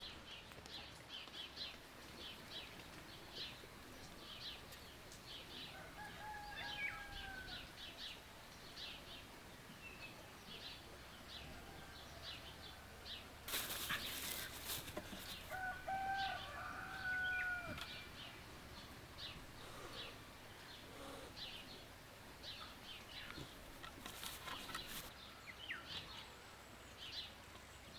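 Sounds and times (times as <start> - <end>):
small birds chirping: 0.0 - 27.9
rooster crowing: 5.7 - 7.8, 11.4 - 13.3, 15.5 - 18.1
wings flapping: 13.5 - 15.5.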